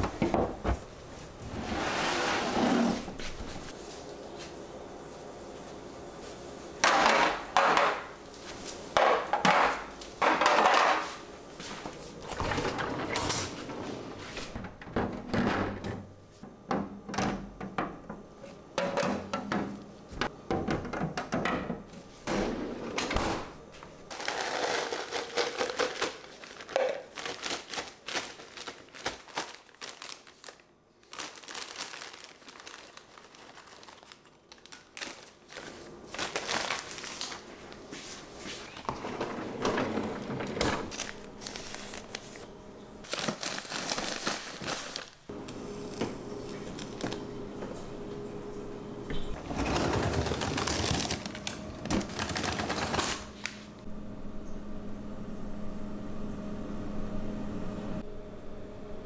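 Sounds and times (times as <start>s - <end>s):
objects knocking and thunking: 0.0s - 0.9s, 6.8s - 8.1s, 8.9s - 11.2s, 14.2s - 23.5s
packaging crinkling: 24.1s - 39.0s, 40.9s - 47.3s, 49.8s - 53.6s.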